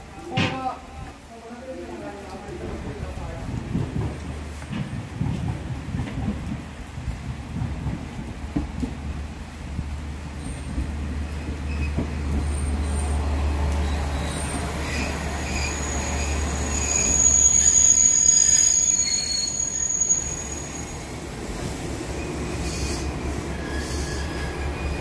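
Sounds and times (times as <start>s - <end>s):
diesel train engine hum: 9.1s - 18.3s
high wheel squeal: 13.9s - 21.0s, 22.1s - 25.0s.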